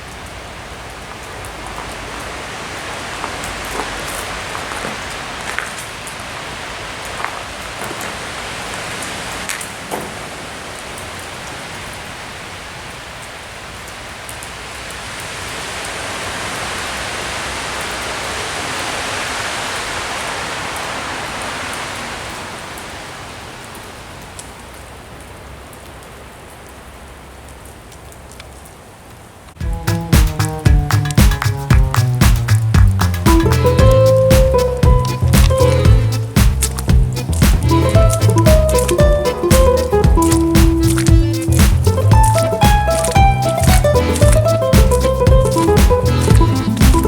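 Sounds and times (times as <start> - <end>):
hiss of wet snowstorm: 0.0 - 28.4.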